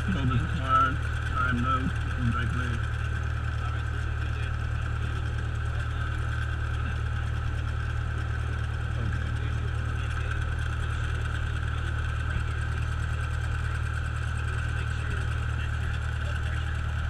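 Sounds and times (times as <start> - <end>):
propeller engine running at low power: 0.0 - 17.0.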